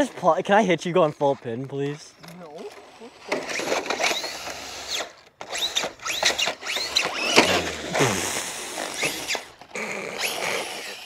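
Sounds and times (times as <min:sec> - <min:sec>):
electric motors whining: 0:02.6 - 0:11.0.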